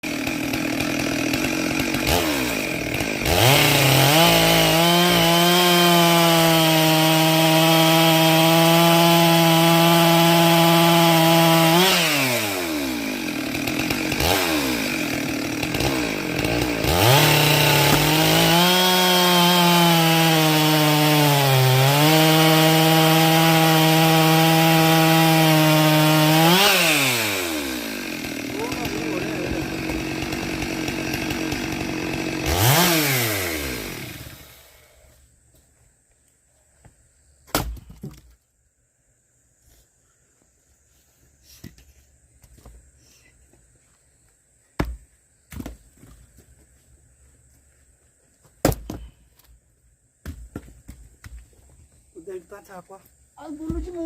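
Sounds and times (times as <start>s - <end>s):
chainsaw revving: 0.0s - 35.0s.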